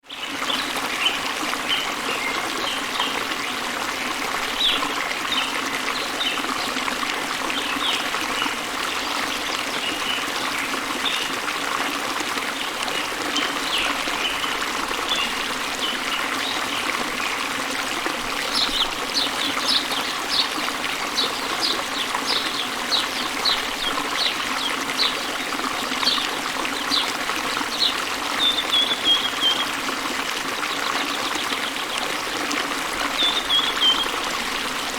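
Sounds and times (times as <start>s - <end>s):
birds chirping: 18.5s - 25.3s, 26.0s - 29.8s, 33.1s - 34.3s.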